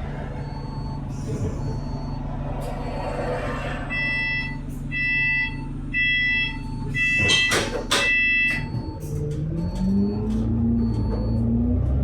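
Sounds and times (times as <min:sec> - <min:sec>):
idling bus engine hum: 0:00.0 - 0:12.0
bus door warning buzzer beeping: 0:03.9 - 0:11.6.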